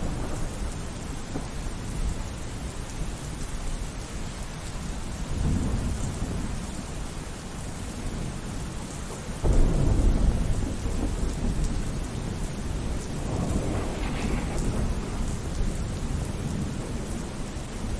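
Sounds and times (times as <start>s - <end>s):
rain falling: 0.0s - 17.9s
thunder rumbling: 9.2s - 17.9s.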